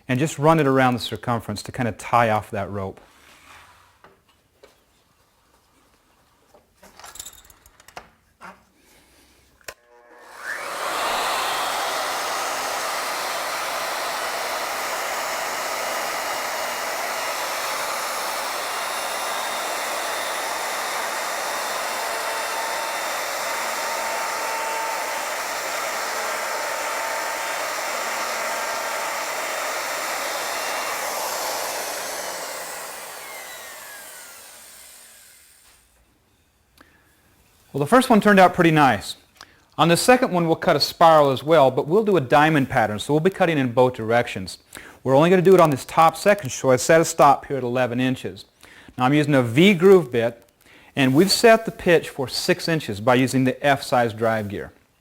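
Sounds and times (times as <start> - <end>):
router winding down: 9.7 - 35.9, 51.0 - 52.6
router motor cutting wood: 9.7 - 36.0, 51.0 - 52.7.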